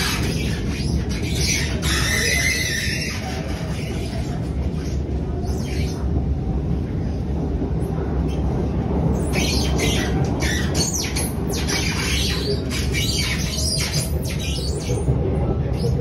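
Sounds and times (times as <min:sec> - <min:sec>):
high-pitched wheel squeals: 0:00.0 - 0:04.2
metro train rumble: 0:00.0 - 0:16.0.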